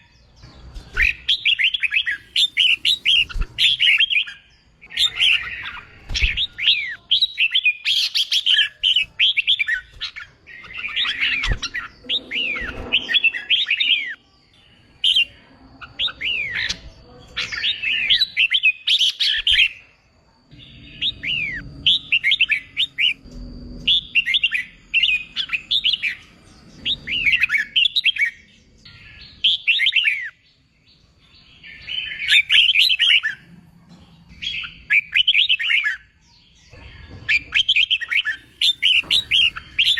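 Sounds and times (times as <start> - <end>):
bulbul chirping song: 0.0 - 39.9.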